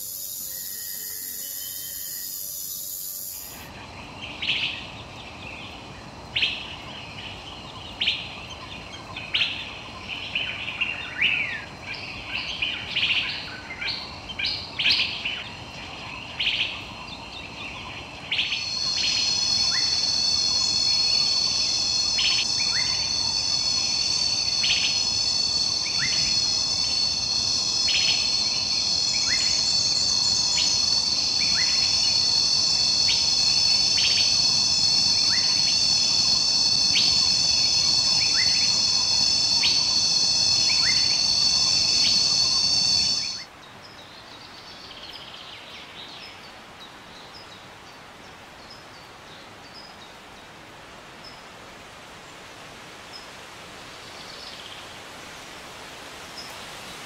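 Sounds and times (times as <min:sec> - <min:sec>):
shrill insect chorus: 0:00.0 - 0:04.9, 0:17.6 - 0:43.5.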